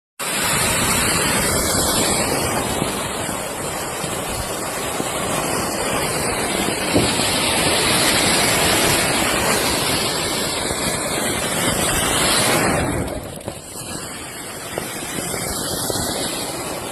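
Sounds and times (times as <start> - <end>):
firecracker hissing sparks: 0.2 - 16.9.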